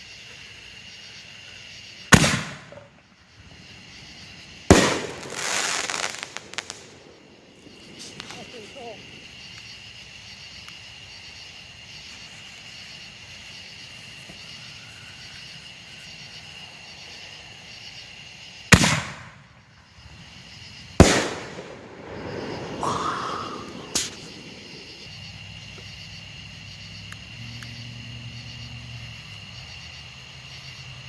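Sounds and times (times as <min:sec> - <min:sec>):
high insect trill: 0:00.0 - 0:31.0
fireworks banging: 0:02.1 - 0:03.0, 0:04.6 - 0:09.2, 0:18.7 - 0:19.5, 0:20.9 - 0:25.1
rushing hiss: 0:21.1 - 0:25.1.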